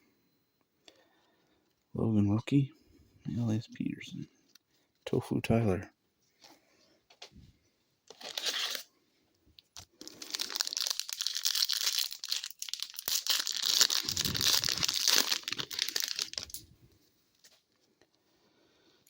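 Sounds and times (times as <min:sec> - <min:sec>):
wrapper tearing and crinkling: 0:08.1 - 0:08.9, 0:09.9 - 0:16.7.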